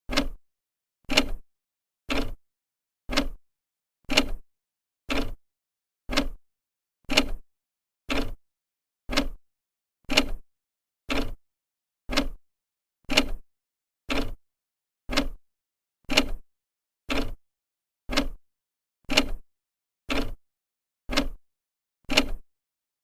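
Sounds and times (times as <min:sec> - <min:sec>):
clock ticking: 0:00.1 - 0:00.4, 0:02.1 - 0:02.4, 0:03.1 - 0:03.4, 0:04.1 - 0:04.4, 0:05.1 - 0:05.4, 0:06.1 - 0:06.4, 0:07.1 - 0:07.4, 0:08.1 - 0:08.4, 0:09.1 - 0:09.4, 0:11.1 - 0:11.4, 0:12.1 - 0:12.4, 0:13.1 - 0:13.4, 0:14.1 - 0:14.4, 0:15.1 - 0:15.4, 0:16.1 - 0:16.4, 0:17.1 - 0:17.4, 0:18.1 - 0:18.4, 0:19.1 - 0:19.4, 0:20.1 - 0:20.4, 0:21.1 - 0:21.4, 0:22.1 - 0:22.4.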